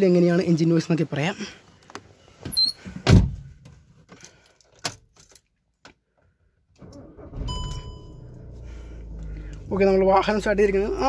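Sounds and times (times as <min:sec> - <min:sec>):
car engine cranking and idling: 0:06.8 - 0:11.0
dashboard warning chime: 0:07.4 - 0:08.4.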